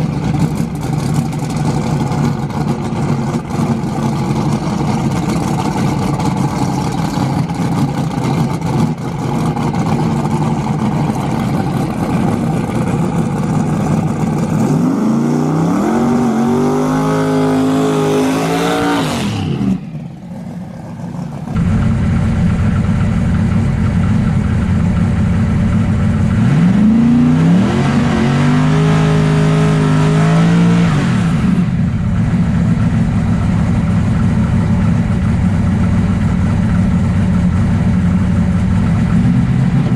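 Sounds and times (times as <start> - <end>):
racing car engines revving: 0.0 - 35.2.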